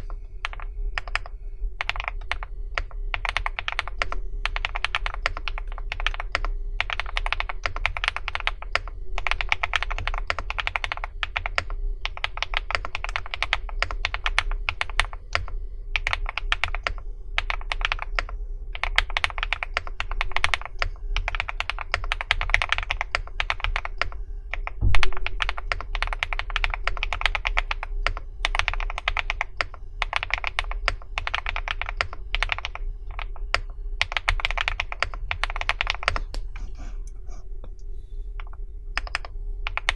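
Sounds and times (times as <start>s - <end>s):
mechanical keyboard typing: 0.0s - 36.4s, 38.4s - 39.9s
heavy thump: 24.8s - 25.3s.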